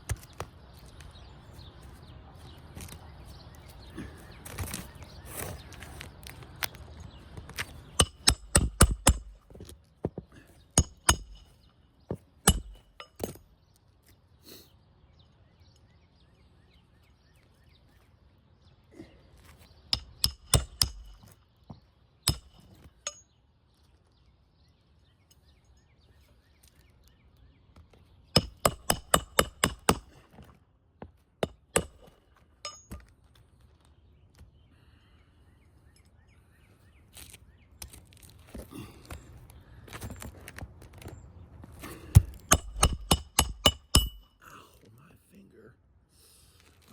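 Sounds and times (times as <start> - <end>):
hammer striking roofing nails: 8.0 - 9.7, 10.8 - 11.6, 12.4 - 13.4, 20.0 - 21.4, 22.3 - 23.2, 28.4 - 30.2, 31.4 - 33.0, 42.1 - 44.3.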